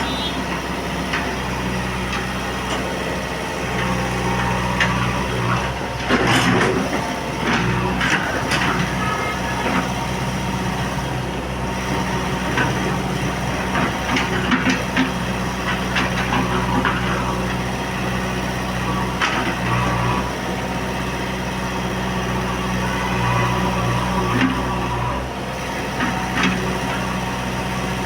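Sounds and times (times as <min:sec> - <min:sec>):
diesel engine idling: 0:00.0 - 0:19.2.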